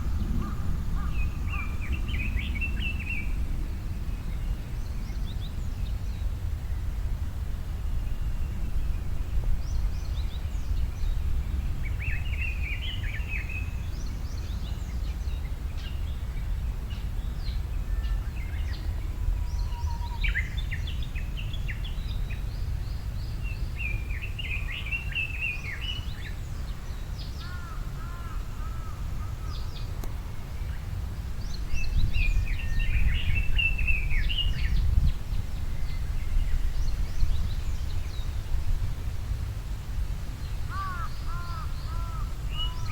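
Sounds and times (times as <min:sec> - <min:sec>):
steady low rumble: 0:00.0 - 0:04.2
small birds twittering: 0:40.4 - 0:42.9.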